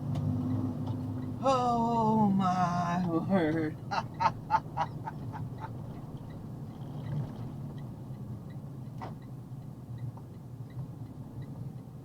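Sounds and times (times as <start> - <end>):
truck engine humming: 0.0 - 8.3
person chuckling: 3.4 - 5.7.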